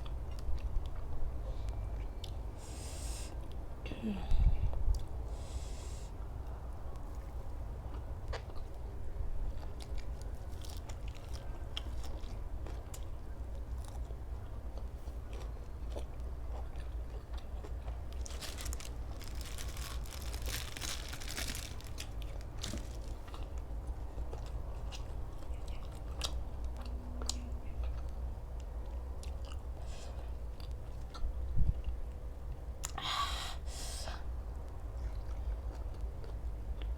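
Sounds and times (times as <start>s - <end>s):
low steady hum: 0.0s - 36.9s
person chewing crunchy food: 7.0s - 32.0s, 34.8s - 36.9s.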